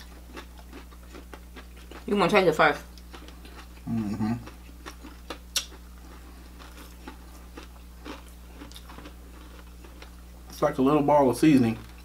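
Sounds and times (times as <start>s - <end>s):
low electrical hum: 0.0s - 12.0s
person humming: 3.8s - 4.4s
chewing mouth clicks and smacks: 4.4s - 5.8s.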